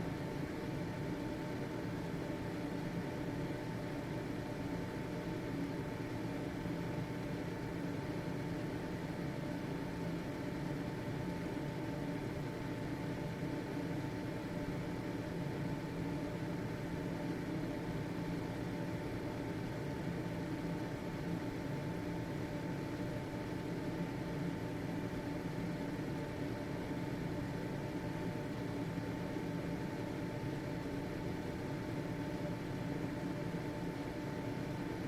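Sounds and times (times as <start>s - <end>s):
exhaust fan humming: 0.0s - 35.0s.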